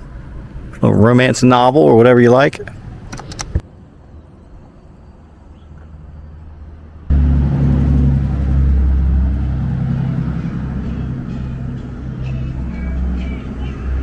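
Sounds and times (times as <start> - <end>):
loud low rumble: 7.0 - 14.0.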